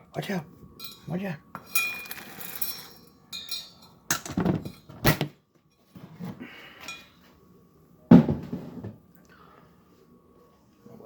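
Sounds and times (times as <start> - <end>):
dishes knocking and clattering: 3.4 - 5.3, 8.1 - 9.0.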